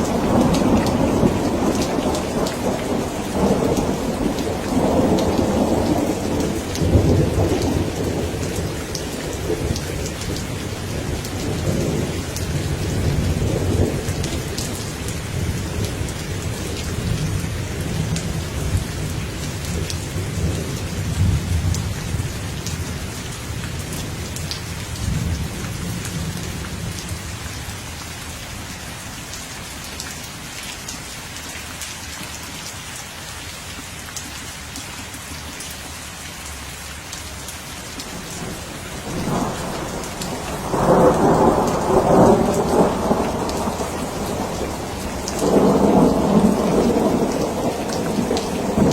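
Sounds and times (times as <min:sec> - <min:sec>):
rolling thunder rumble: 0:00.0 - 0:22.6, 0:38.2 - 0:48.9
steady rain falling: 0:00.0 - 0:48.9.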